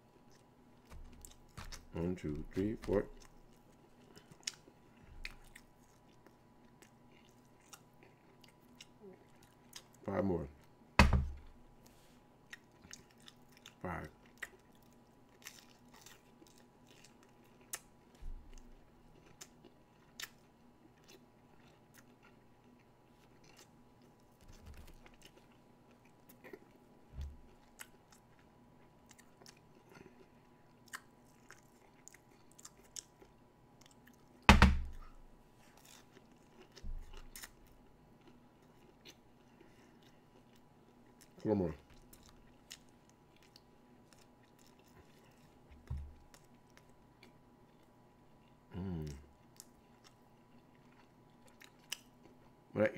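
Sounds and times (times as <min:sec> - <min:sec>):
person chewing food: 0:00.0 - 0:10.0, 0:10.6 - 0:52.6
sharp thump: 0:11.0 - 0:11.4, 0:34.5 - 0:35.0.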